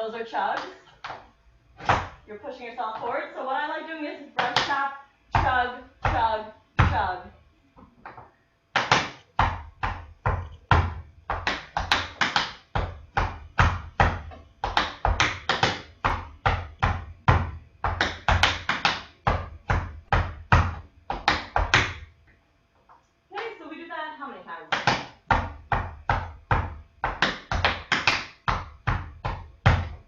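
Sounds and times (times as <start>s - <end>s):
tap shoes on hard floor: 5.4s - 7.1s, 7.8s - 22.1s, 24.7s - 30.0s.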